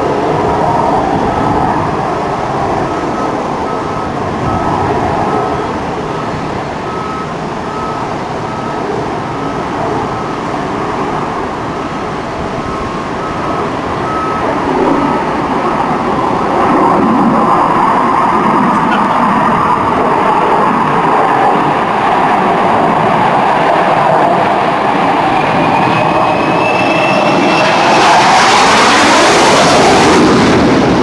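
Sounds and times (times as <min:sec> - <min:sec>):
jet engines roaring: 0:00.0 - 0:31.0
faint short beep: 0:06.9 - 0:08.8, 0:12.7 - 0:15.3.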